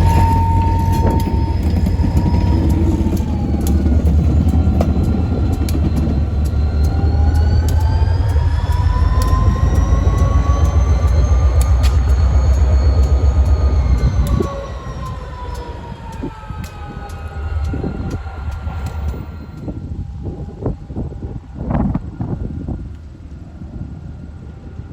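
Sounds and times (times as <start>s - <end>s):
thin wheel squeal: 0.0s - 19.8s
wheels clicking over rail joints: 0.0s - 20.4s
train rumble: 0.0s - 24.9s.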